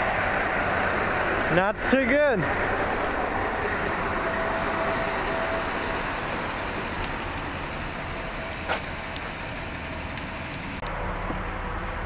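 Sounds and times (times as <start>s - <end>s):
vehicle road and engine noise: 0.0s - 12.0s.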